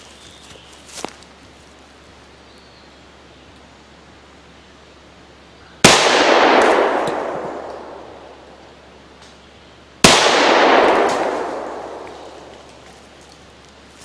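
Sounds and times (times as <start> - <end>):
pistol shot: 5.8 - 8.7, 10.0 - 12.9.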